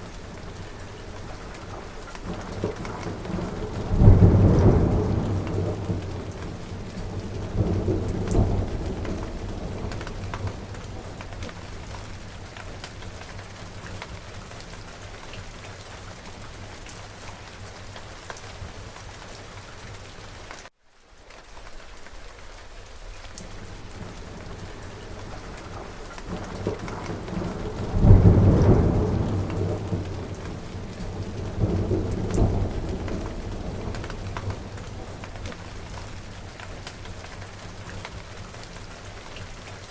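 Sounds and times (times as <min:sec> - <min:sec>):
steady rain falling: 0:00.0 - 0:39.9
rolling thunder: 0:01.2 - 0:12.3, 0:23.6 - 0:36.3.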